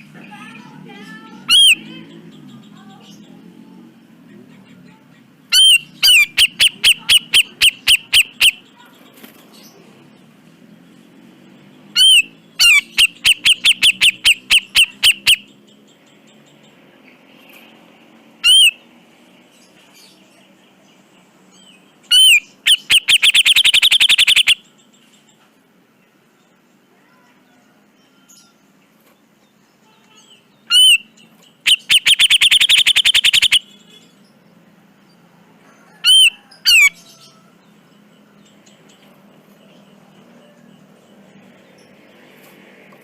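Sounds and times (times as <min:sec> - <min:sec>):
bulbul calling in harsh bursts: 0:00.0 - 0:02.4, 0:05.4 - 0:08.9, 0:11.9 - 0:16.0, 0:18.4 - 0:18.9, 0:22.0 - 0:24.8, 0:30.2 - 0:34.2, 0:36.0 - 0:37.3.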